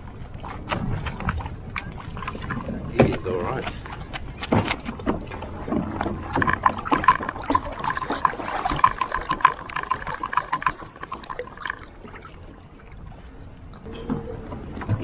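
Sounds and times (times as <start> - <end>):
clicks and knocks of gear: 2.9 - 9.4.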